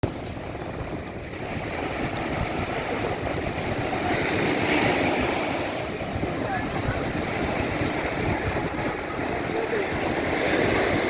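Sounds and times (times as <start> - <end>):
sea waves washing in: 0.0 - 11.0.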